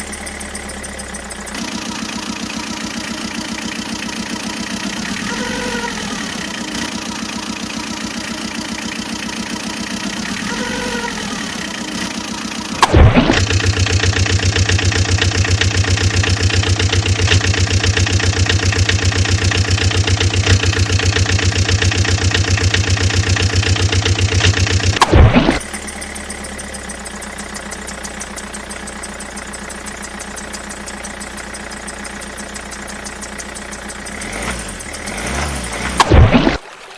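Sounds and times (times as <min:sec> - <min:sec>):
motor chugging: 0:00.0 - 0:36.6
loud burst: 0:12.2 - 0:15.4, 0:24.8 - 0:25.6.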